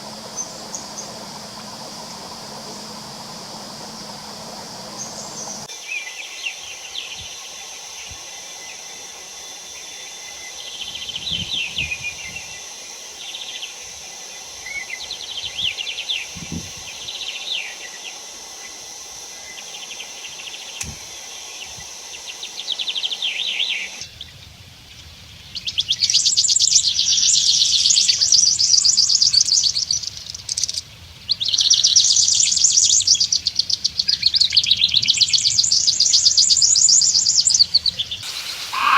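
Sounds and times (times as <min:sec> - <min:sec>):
loud fast-pulsing chirring: 0:00.0 - 0:05.7, 0:38.2 - 0:38.9
birds chirping trills: 0:00.0 - 0:07.2, 0:37.9 - 0:38.9
high insect hum: 0:00.0 - 0:38.9.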